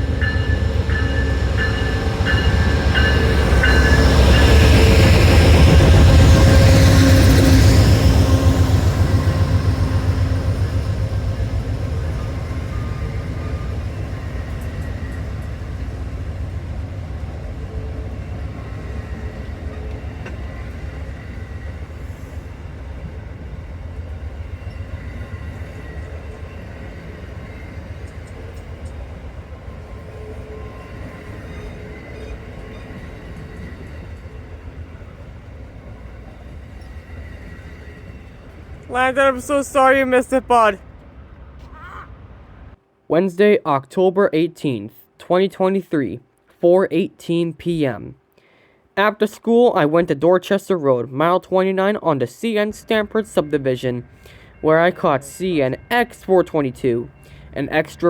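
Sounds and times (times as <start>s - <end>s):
thin ringing from train wheels: 0.0s - 5.6s
train wheels rumbling on rails: 0.0s - 39.5s.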